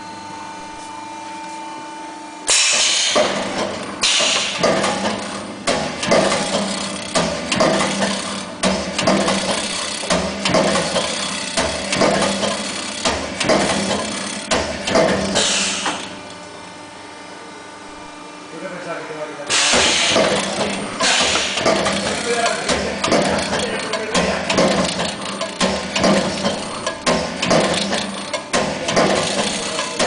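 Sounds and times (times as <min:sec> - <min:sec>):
machine hum: 0:00.0 - 0:30.0
hydraulic hiss: 0:02.5 - 0:03.2, 0:15.4 - 0:16.0, 0:19.5 - 0:20.3, 0:21.0 - 0:21.6
press cutting strokes knocking: 0:02.5 - 0:16.1, 0:19.5 - 0:30.0.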